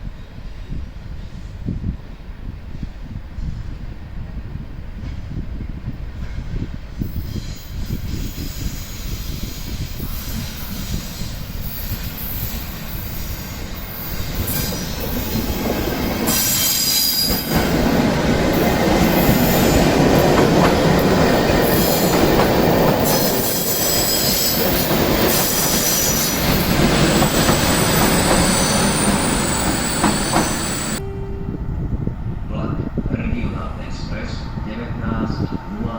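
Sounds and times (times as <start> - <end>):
electric train moving: 6.1 - 35.9
wheels squealing on rails: 6.2 - 31.0.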